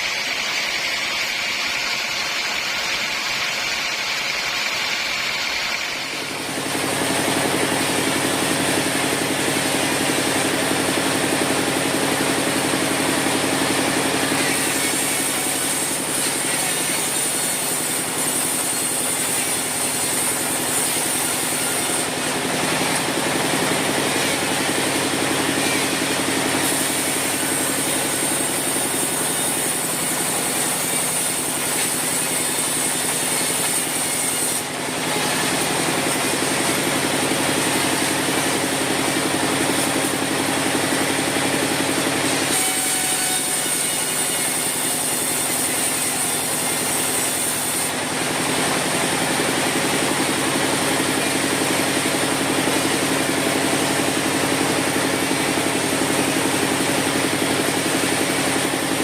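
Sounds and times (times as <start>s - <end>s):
saw blade hissing through wood: 0.0s - 8.7s, 13.7s - 48.0s
sawmill saw humming: 0.0s - 59.0s.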